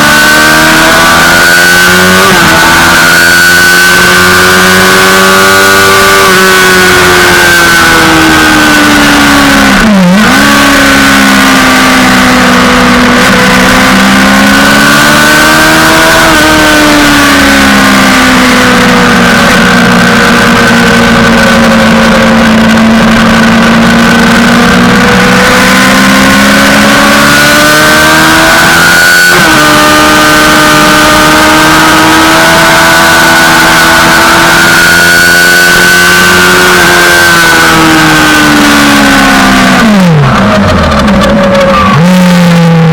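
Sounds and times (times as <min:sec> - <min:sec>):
motorcycle engine at high revs: 0:00.0 - 0:42.9.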